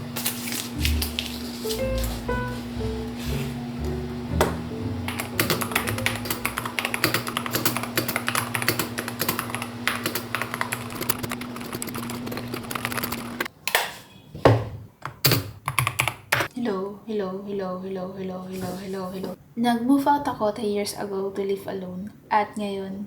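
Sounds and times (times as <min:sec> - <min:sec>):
typing on computer keyboard: 0:05.1 - 0:13.5, 0:15.1 - 0:16.5.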